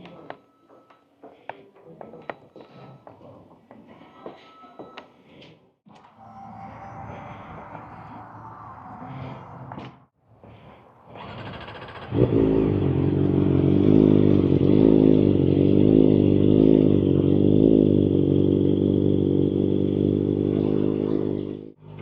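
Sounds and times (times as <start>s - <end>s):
motorcycle engine running: 11.4s - 22.0s.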